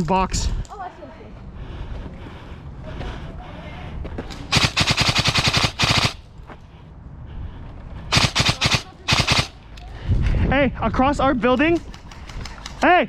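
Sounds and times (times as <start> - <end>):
airsoft rifle full-auto bursts: 4.5 - 6.3, 8.1 - 9.6.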